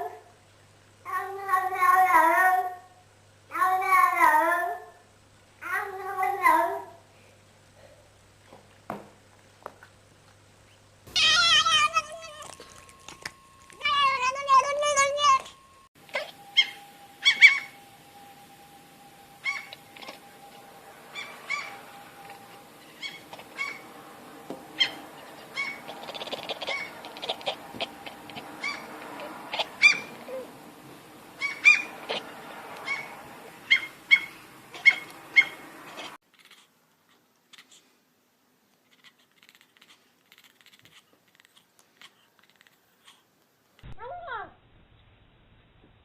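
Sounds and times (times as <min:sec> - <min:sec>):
cat making honk-like calls: 0:11.1 - 0:12.6.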